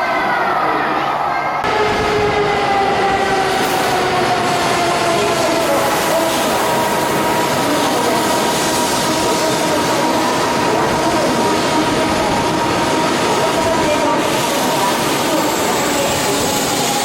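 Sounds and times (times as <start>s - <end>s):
train rushing noise: 0.0s - 17.0s.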